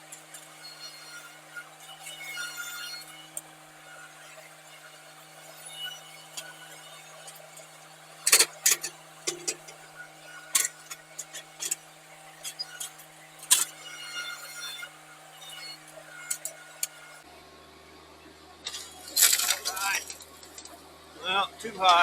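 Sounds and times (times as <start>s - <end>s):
tractor engine hum: 14.5s - 22.0s.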